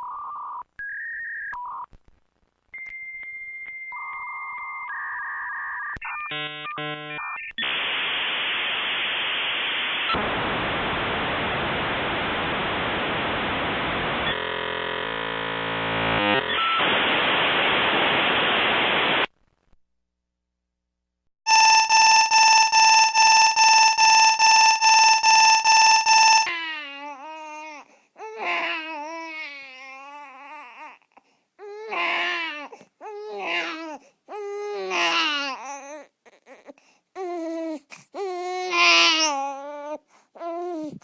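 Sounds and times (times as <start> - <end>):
phone-line hiss: 6.3 - 14.6, 16.0 - 19.3, 21.5 - 26.5
keypad dialing tones: 21.5 - 26.5
pulsing high electronic tone: 21.5 - 26.5.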